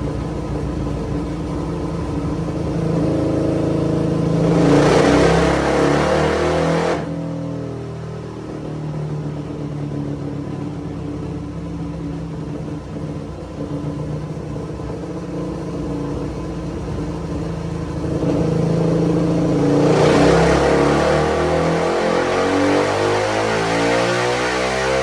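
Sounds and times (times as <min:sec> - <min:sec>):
motorcycle engine revving on dyno: 0:01.2 - 0:09.4, 0:15.6 - 0:25.0.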